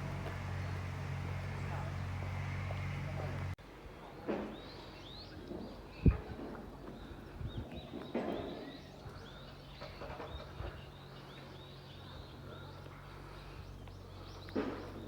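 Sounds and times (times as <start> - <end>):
small birds chirping: 4.5 - 15.0.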